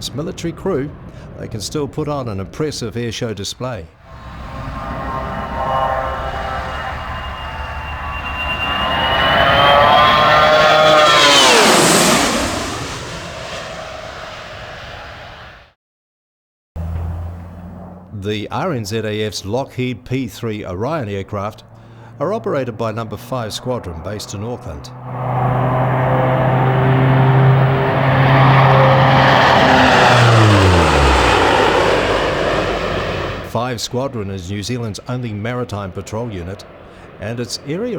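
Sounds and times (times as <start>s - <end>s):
propeller aircraft flying past: 0.0s - 3.0s, 4.0s - 15.6s, 16.8s - 37.9s
jet airliner low pass: 0.0s - 15.7s, 16.8s - 37.9s.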